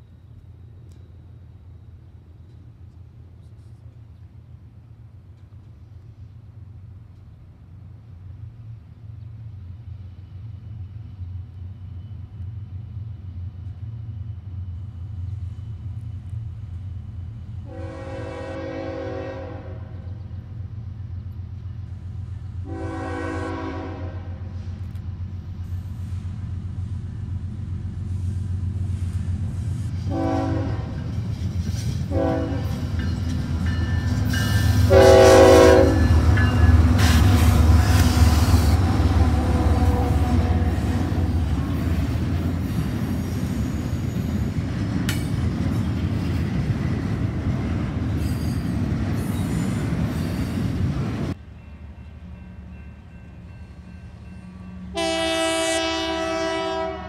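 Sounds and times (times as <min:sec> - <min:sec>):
locomotive engine rumble: 0:00.0 - 0:57.0
train cars rolling rumble: 0:00.0 - 0:57.0
locomotive air horn blasts: 0:17.6 - 0:20.1, 0:22.6 - 0:24.6, 0:30.0 - 0:31.1, 0:32.1 - 0:32.9, 0:34.6 - 0:36.3, 0:37.0 - 0:41.3, 0:54.8 - 0:57.0.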